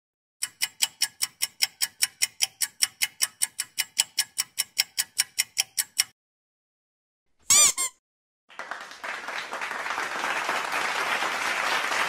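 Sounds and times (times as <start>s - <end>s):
clock ticking: 0.4s - 6.2s.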